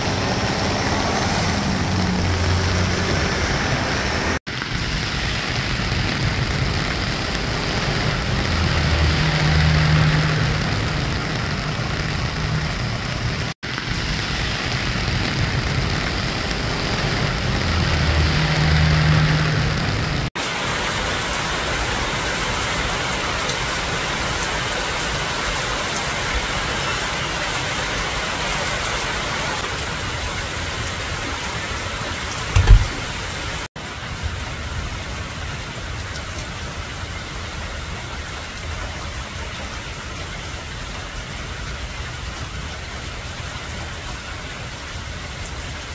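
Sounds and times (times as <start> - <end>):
heavy rain falling: 0.0 - 45.9
brief low thud: 32.6 - 33.1.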